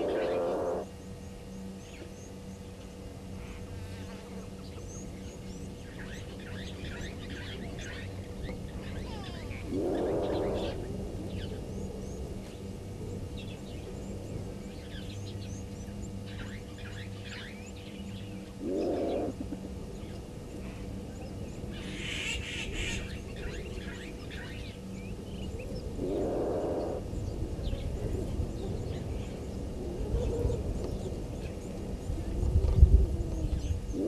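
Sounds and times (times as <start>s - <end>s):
small bird chirps: 0.0s - 0.8s
low animal call: 0.0s - 0.9s, 8.7s - 11.6s, 18.6s - 19.7s, 25.9s - 27.1s, 32.6s - 34.0s.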